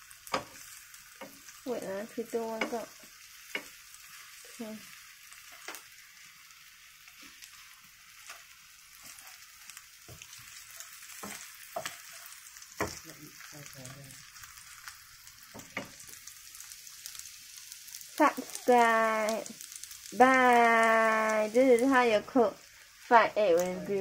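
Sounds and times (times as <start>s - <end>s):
egg and beans sizzling in oil: 0.0s - 24.0s
wooden spatula scraping a pan: 7.1s - 13.0s.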